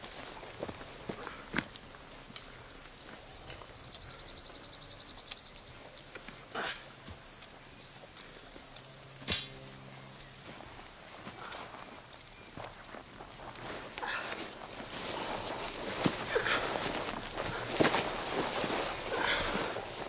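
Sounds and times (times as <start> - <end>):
songbirds singing: 0.0 - 20.0.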